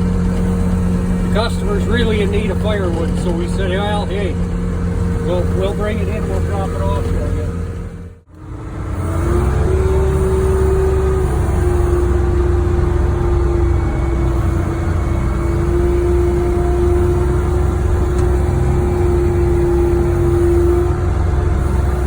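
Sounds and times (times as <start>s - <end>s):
steady whine: 0.0s - 20.9s
diesel engine droning: 0.0s - 22.0s.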